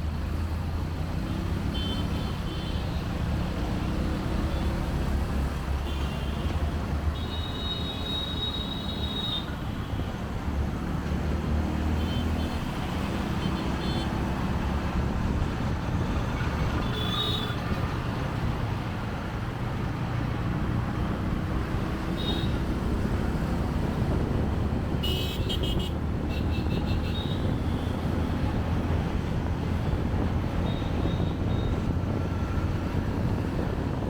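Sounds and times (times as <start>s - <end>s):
motorcycle engine and road rumble: 0.0s - 34.0s
car horn beeps: 1.7s - 2.9s, 13.4s - 14.1s, 25.0s - 27.5s, 30.6s - 31.9s.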